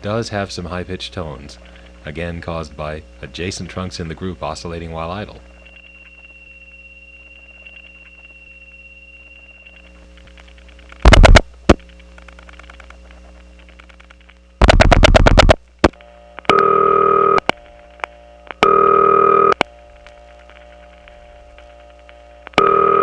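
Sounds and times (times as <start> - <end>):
telephone line hum: 0.0 - 23.0
buzzing tone bursts: 4.9 - 13.5, 14.5 - 23.0
dial-pulse clicks: 5.4 - 23.0.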